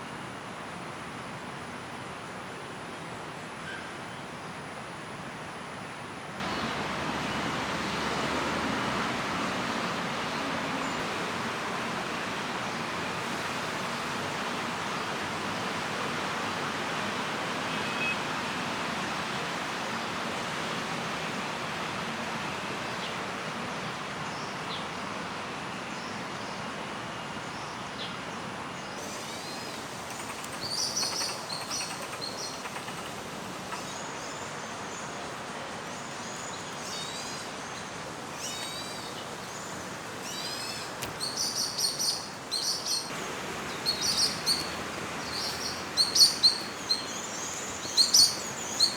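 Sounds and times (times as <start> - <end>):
steady background noise: 0.0 - 48.9
small birds alarm calling: 29.0 - 34.6, 38.3 - 48.9.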